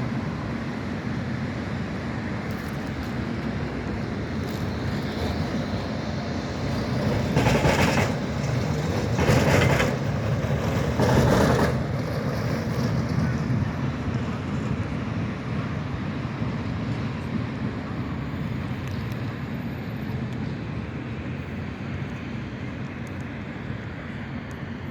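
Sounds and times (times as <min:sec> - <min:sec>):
vehicles rushing past: 0:00.0 - 0:16.5
road and rail rumble: 0:00.0 - 0:24.9.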